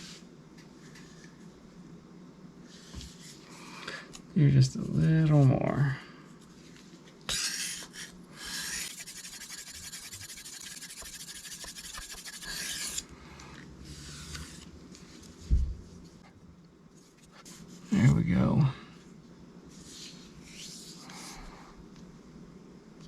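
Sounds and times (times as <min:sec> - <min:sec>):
knife scraping on sharpening stone: 0:08.6 - 0:13.0.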